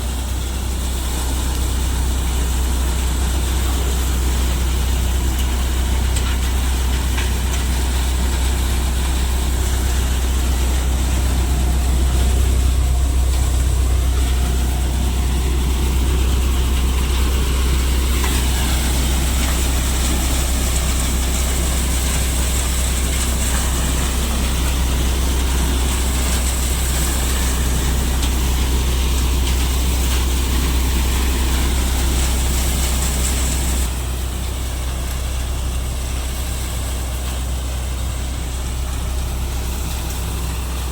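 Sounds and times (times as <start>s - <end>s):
tractor diesel engine droning: 0.0s - 40.9s.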